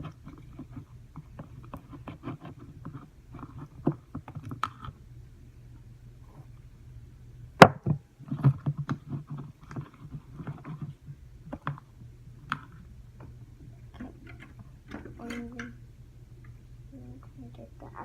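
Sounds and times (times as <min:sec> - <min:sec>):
slime stirred in a bowl: 0:00.0 - 0:04.9, 0:08.2 - 0:12.9.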